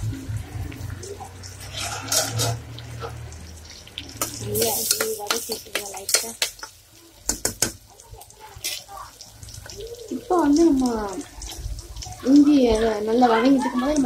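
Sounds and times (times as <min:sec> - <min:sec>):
paste sizzling in hot oil: 0:00.0 - 0:14.0
ladle scraping and clicking on pot: 0:01.6 - 0:03.2.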